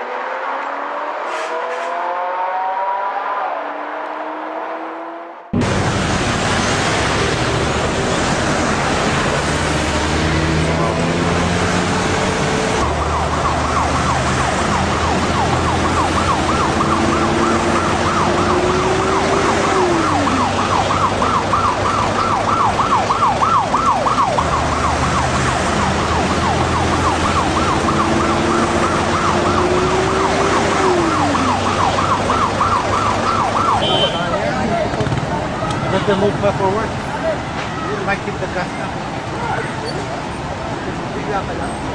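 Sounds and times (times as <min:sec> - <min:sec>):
siren warbling: 0:00.0 - 0:05.7, 0:10.4 - 0:34.1
engine and road rumble: 0:00.0 - 0:41.9.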